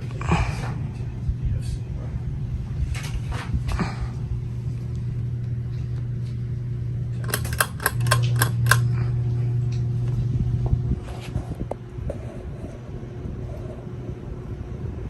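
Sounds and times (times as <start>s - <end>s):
ceiling fan humming: 0.0s - 15.0s
quick clicks: 7.2s - 8.9s.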